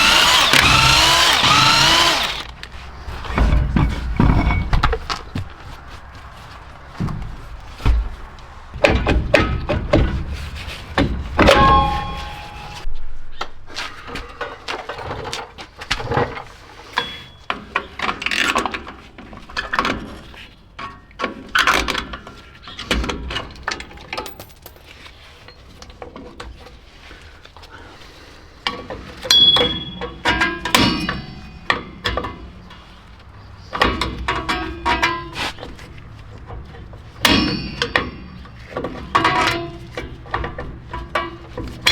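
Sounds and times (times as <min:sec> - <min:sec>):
short metallic rings: 0:11.6 - 0:12.8, 0:29.3 - 0:30.2.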